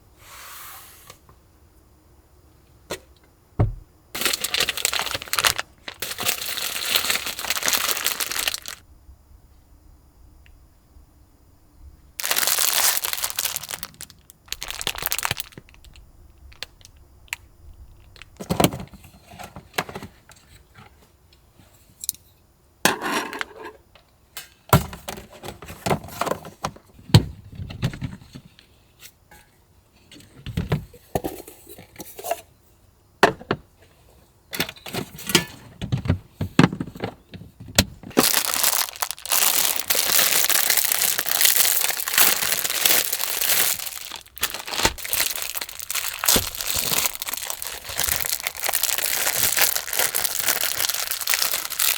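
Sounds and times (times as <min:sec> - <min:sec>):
plastic packaging crinkling: 0:04.2 - 0:08.8, 0:12.2 - 0:18.9, 0:38.1 - 0:51.9.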